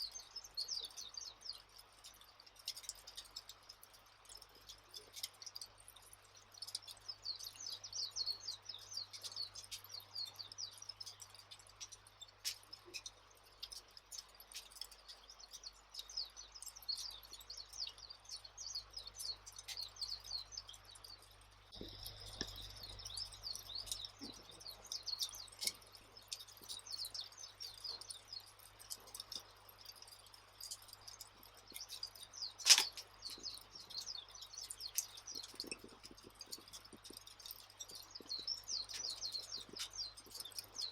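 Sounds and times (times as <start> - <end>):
small birds chirping: 0.0 - 40.9
fire crackling pops: 32.5 - 33.7.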